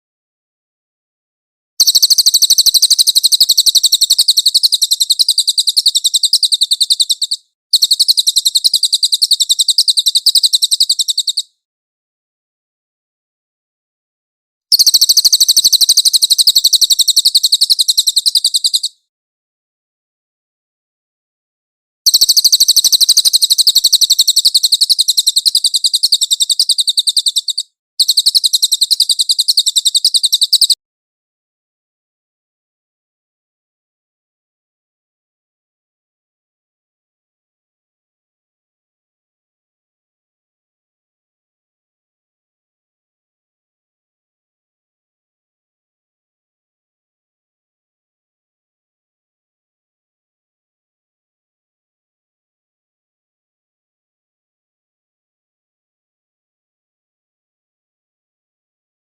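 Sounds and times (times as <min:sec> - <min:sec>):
bird singing a rapid trill: 0:01.8 - 0:11.6, 0:14.7 - 0:19.0, 0:22.1 - 0:30.8.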